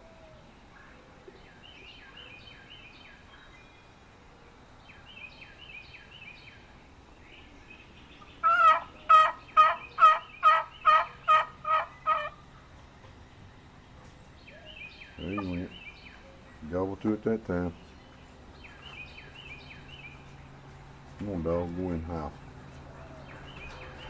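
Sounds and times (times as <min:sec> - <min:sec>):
distant falling bird calls: 0:00.0 - 0:24.0
turkey box call notes: 0:08.4 - 0:12.4.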